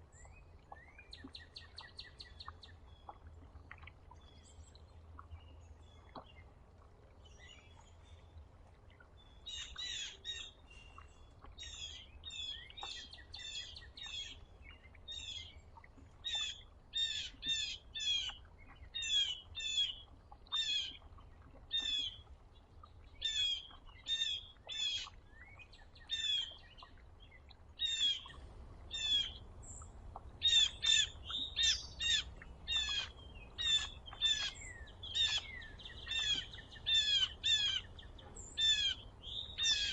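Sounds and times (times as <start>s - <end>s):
songbird chirping: 4.1s - 39.9s
faint low rumble: 26.8s - 36.9s.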